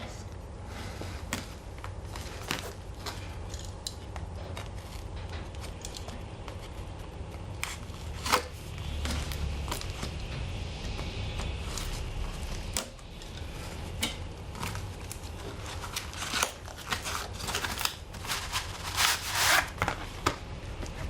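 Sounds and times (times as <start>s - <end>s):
low steady hum: 0.0s - 21.0s
packaging being handled: 14.5s - 21.0s.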